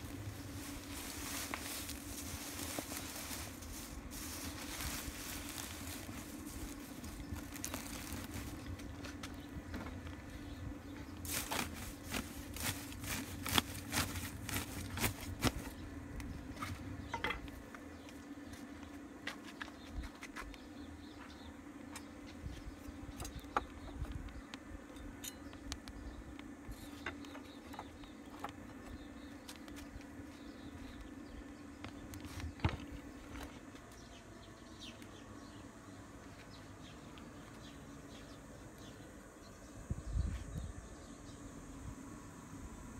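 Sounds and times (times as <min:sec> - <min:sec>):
low buzz: 0:00.0 - 0:19.2.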